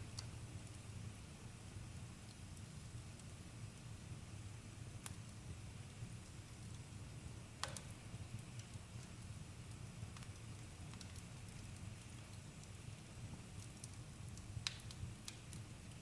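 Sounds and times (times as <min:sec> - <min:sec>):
campfire crackling: 0:04.8 - 0:16.0.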